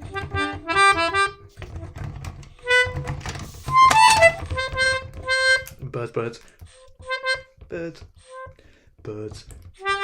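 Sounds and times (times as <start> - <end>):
clicks and low thumps: 0.0 - 6.0
free-reed instrument chords: 2.6 - 5.7.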